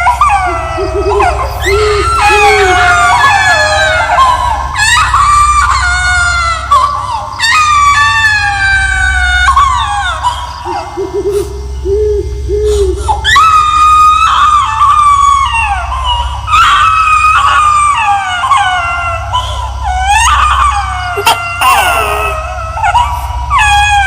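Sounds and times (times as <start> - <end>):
high-pitched wailing cries: 0.0 - 11.6, 12.6 - 24.0
low drone: 0.0 - 24.0.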